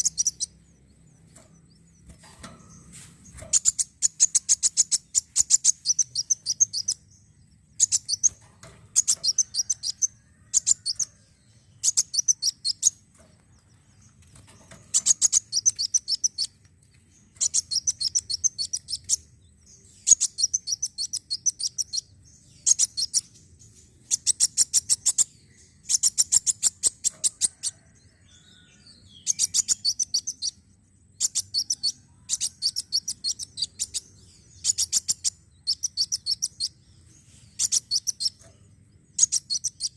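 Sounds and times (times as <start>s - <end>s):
bird chattering trills: 0.0s - 0.6s, 3.3s - 7.1s, 7.8s - 11.2s, 11.8s - 13.1s, 14.8s - 16.6s, 17.3s - 19.3s, 20.0s - 23.3s, 31.2s - 36.8s, 37.6s - 39.9s.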